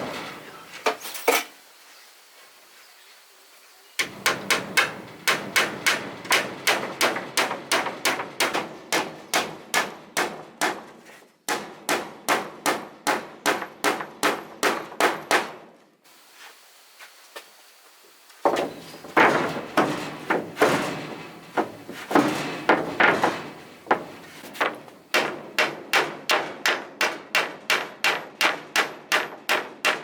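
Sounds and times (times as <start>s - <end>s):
hammering nails into wood: 4.0s - 15.6s, 18.4s - 30.0s.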